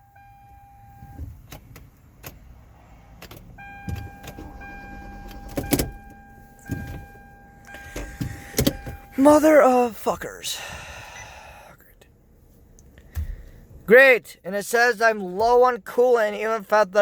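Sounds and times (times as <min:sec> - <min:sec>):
car electronic warning tone: 0:00.0 - 0:01.3, 0:03.5 - 0:10.2
clicks and knocks from car controls: 0:05.3 - 0:09.2, 0:12.8 - 0:13.6.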